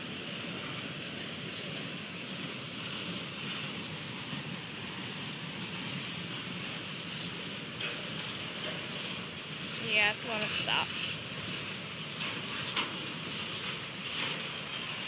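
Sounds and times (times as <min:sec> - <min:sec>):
train wheels on track: 0:00.0 - 0:15.0.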